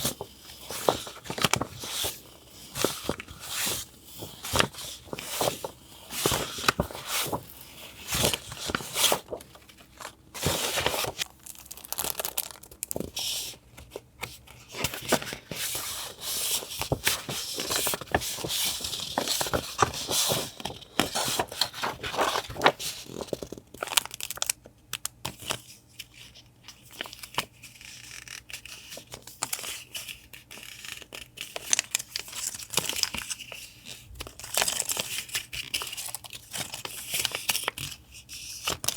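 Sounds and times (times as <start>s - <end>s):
paper crinkling and tearing: 0.0s - 13.4s, 14.7s - 24.6s.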